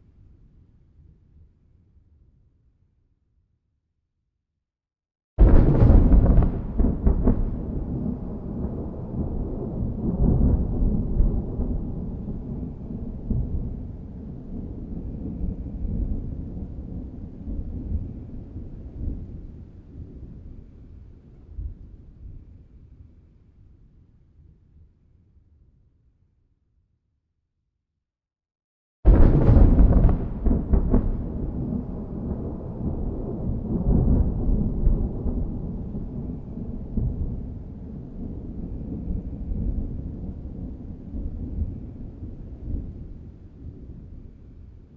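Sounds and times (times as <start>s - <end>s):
rolling thunder rumbling: 5.4s - 20.7s, 29.1s - 44.9s.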